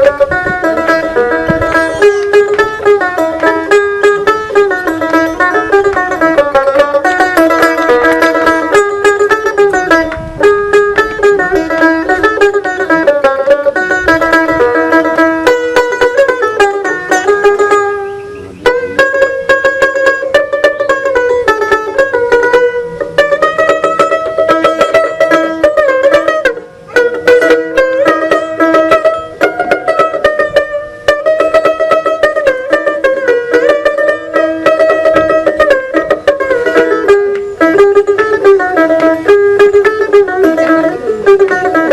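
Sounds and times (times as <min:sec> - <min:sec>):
plucked lute playing: 0:00.0 - 0:41.9.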